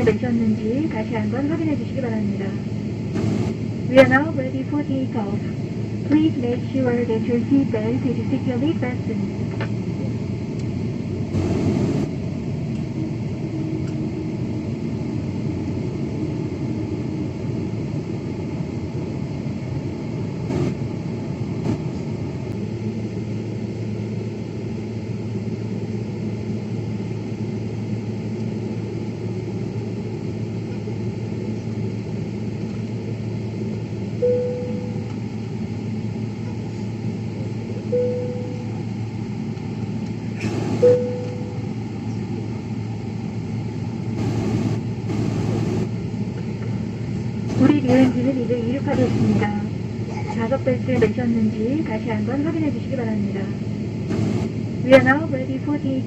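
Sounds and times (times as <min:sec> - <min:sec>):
airliner cabin rumble: 0:00.0 - 0:56.0
short tones: 0:40.8 - 0:41.7.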